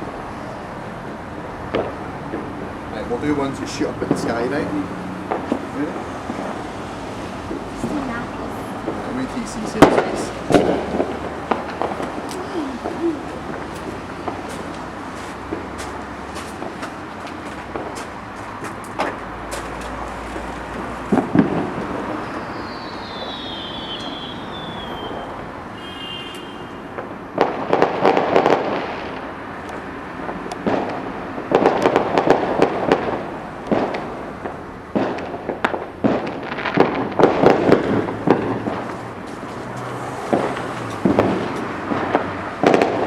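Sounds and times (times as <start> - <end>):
fireworks crackling and banging: 0.0 - 43.0
falling whistle: 22.2 - 26.8.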